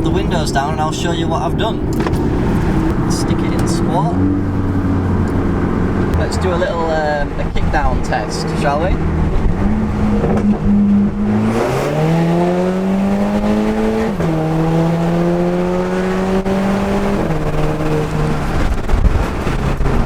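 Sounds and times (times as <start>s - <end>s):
car engine revving at full throttle: 0.0s - 20.0s
gearbox upshift: 1.7s - 3.9s.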